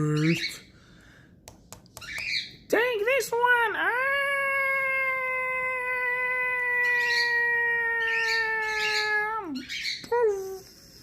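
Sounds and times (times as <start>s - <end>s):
bird chirps: 2.0s - 2.6s.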